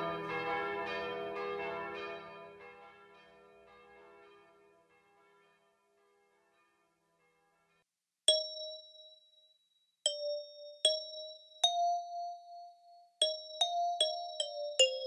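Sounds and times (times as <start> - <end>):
bell-like chime melody: 8.3 - 15.0.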